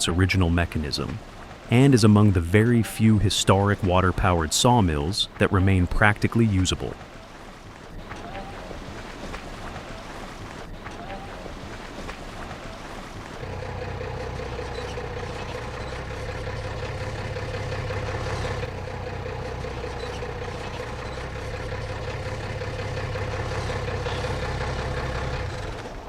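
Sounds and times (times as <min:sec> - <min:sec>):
heavy engine idling: 0:13.4 - 0:26.0.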